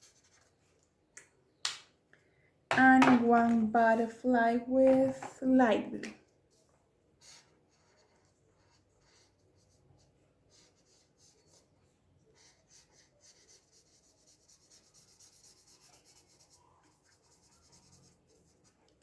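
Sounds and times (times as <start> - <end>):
marker strokes on paper: 0.0 - 0.6, 6.4 - 19.0.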